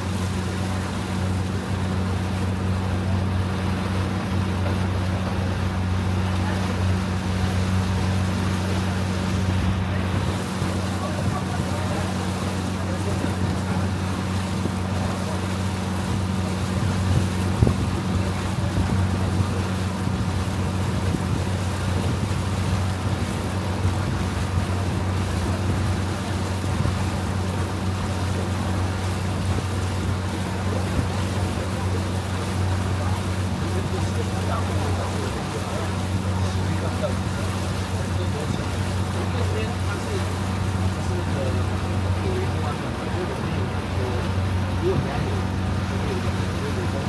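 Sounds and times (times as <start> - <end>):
boat engine humming: 0.0 - 47.0
water: 0.0 - 47.0
wind noise: 16.2 - 26.0.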